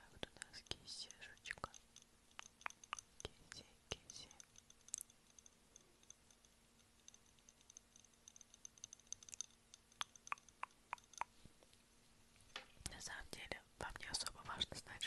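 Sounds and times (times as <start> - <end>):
wet mouth clicks: 2.4 - 6.2, 7.1 - 11.4.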